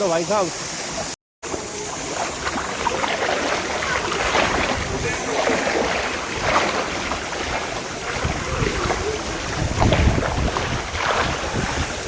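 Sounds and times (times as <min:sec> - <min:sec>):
floodwater sloshing: 0:01.4 - 0:12.0
wind buffeting microphone: 0:03.0 - 0:12.0.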